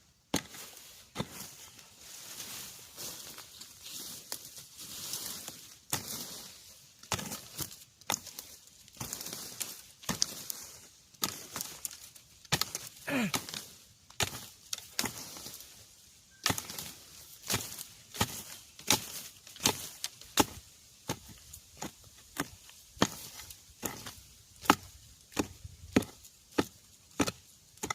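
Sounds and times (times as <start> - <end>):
rustling: 0.4 - 24.3
digging tool chopping into earth: 7.0 - 10.4, 11.2 - 13.6, 16.4 - 27.9.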